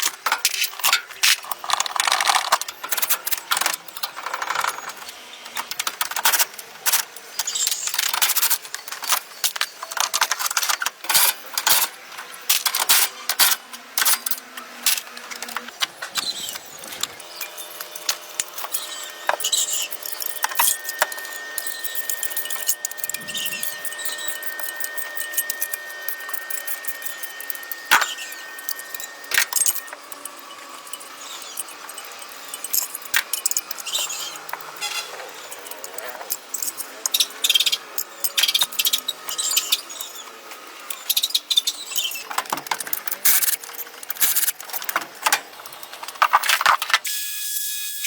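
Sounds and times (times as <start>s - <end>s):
small hard objects clinking: 14.0s - 37.2s.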